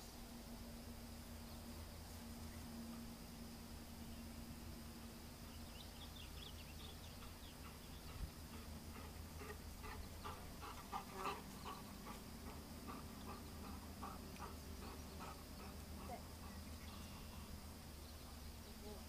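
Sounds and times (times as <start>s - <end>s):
bird calls: 5.5s - 19.0s.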